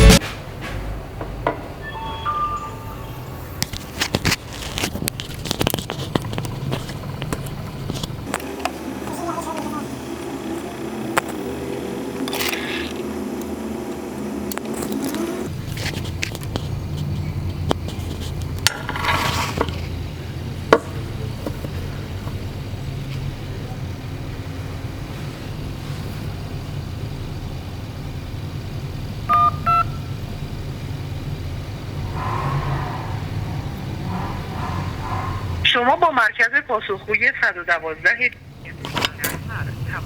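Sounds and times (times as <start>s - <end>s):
short electronic beeps: 1.8s - 3.6s, 29.3s - 30.1s
steady low hum: 2.4s - 40.0s.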